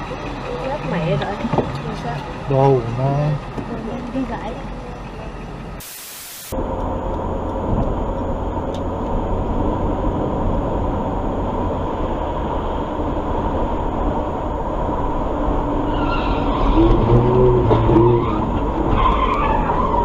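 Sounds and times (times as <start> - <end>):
vehicle road and engine rumble: 0.0 - 20.0
short burst of hiss: 5.8 - 6.5.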